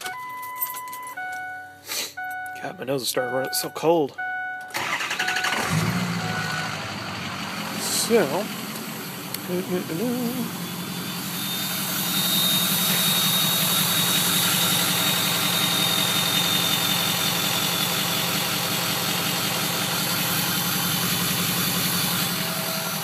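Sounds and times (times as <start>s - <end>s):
diesel engine idling: 1.7s - 23.0s
thin high whistle: 10.5s - 17.1s.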